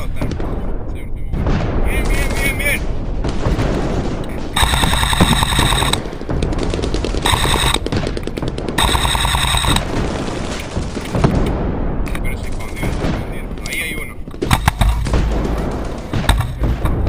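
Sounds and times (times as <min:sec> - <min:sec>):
toy gun firing bursts: 0:04.6 - 0:06.0, 0:07.2 - 0:07.9, 0:08.8 - 0:09.8.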